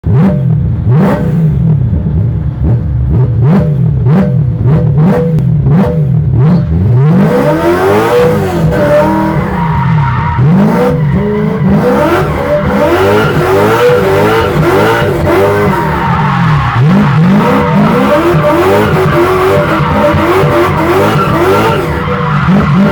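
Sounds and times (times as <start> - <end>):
car engine revving: 0.0 - 22.9
tyres squealing: 8.7 - 22.9.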